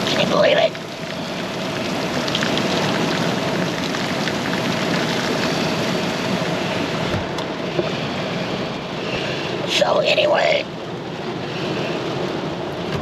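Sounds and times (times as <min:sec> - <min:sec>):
heavy rain on car roof: 0:00.0 - 0:07.2.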